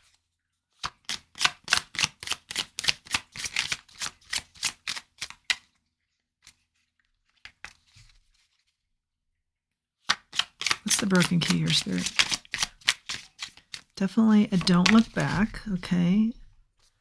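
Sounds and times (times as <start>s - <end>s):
cards being shuffled: 0.8s - 5.4s, 10.1s - 16.5s
card taps: 10.9s - 12.9s, 14.3s - 16.5s.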